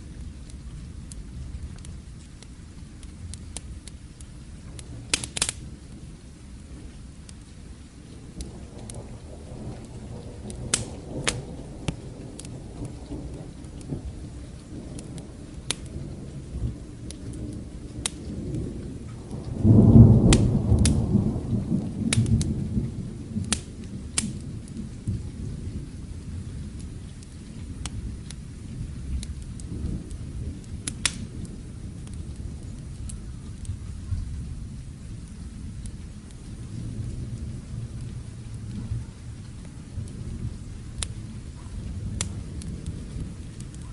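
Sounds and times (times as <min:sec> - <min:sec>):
low rolling thunder: 0:00.0 - 0:43.9
steady rain: 0:00.0 - 0:43.9
wood fire crackling: 0:00.0 - 0:43.9
loud thunderclap: 0:08.2 - 0:26.6, 0:36.6 - 0:43.9.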